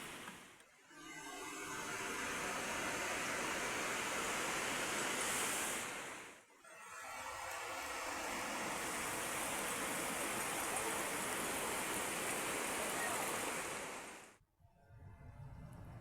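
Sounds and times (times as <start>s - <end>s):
heavy rain: 8.8s - 14.3s.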